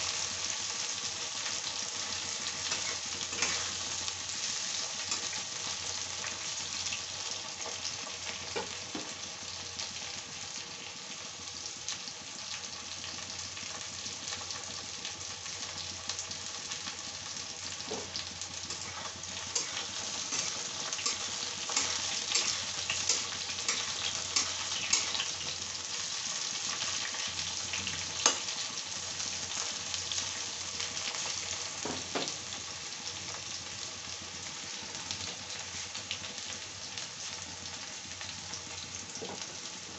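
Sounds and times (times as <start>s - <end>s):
vegetables sizzling in oil: 0.0s - 39.9s
metal spatula clicking on pan: 19.6s - 25.2s.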